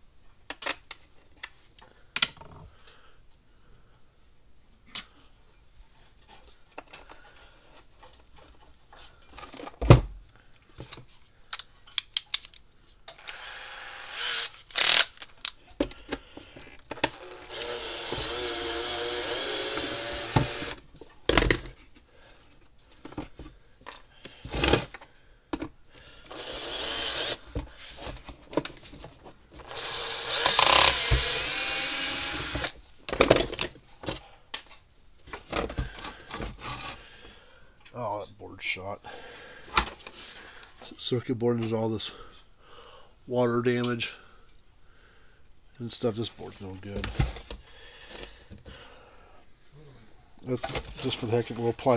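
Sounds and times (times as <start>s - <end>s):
cordless drill running: 13.2s - 15.1s, 17.0s - 20.8s, 26.3s - 27.4s, 29.6s - 32.8s
plastic parts knocking and clattering: 20.4s - 21.8s, 23.0s - 25.8s, 27.5s - 29.7s, 32.5s - 36.7s, 46.9s - 48.8s.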